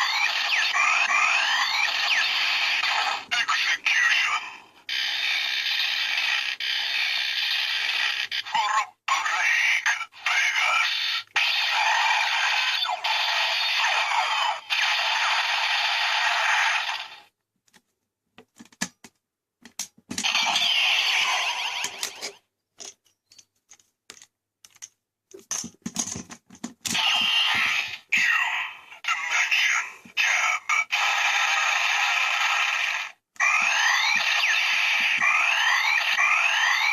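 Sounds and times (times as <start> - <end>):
toy gun electronic sound effects: 0.0 - 17.3, 20.2 - 22.4, 26.9 - 36.9.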